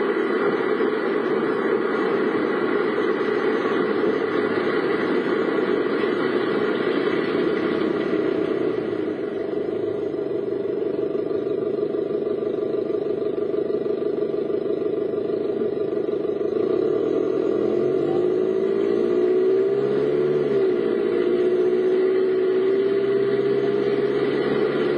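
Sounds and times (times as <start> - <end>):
car engine accelerating: 0.0 - 24.9
road noise: 0.0 - 24.9.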